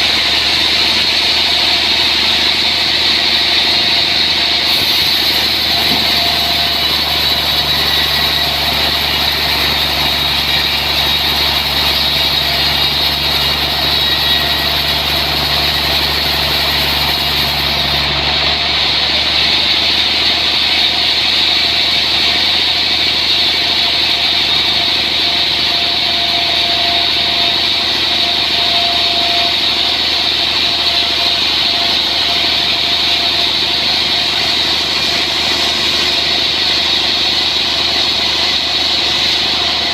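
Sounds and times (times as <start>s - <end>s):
sawmill machinery milling log: 0.0s - 39.9s.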